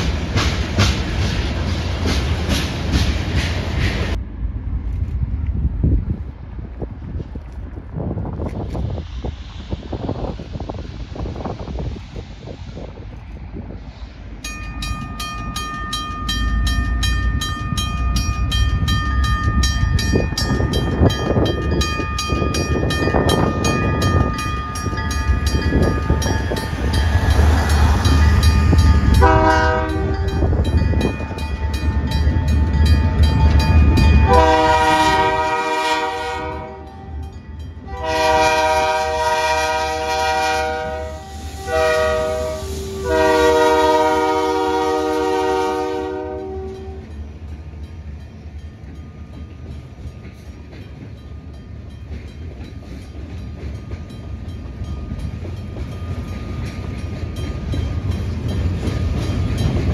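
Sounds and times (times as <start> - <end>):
diesel locomotive rumble: 0.0 - 59.9
crossing bell ringing: 14.4 - 59.9
locomotive air horn blasts: 29.1 - 30.5, 34.2 - 37.2, 37.9 - 47.1.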